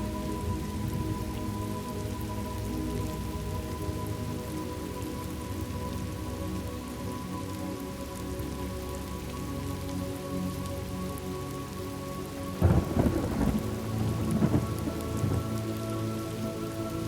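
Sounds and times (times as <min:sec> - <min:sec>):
steady rain: 0:00.0 - 0:17.0
thunderclap rumbling: 0:12.6 - 0:15.6.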